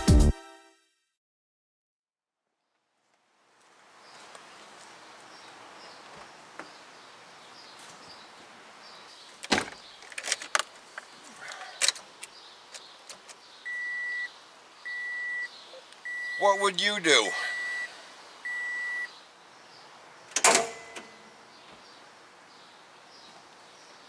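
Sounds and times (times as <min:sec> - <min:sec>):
car warning chime beeping: 0:13.7 - 0:14.3, 0:14.9 - 0:19.2
car door latch clicks: 0:20.3 - 0:21.1.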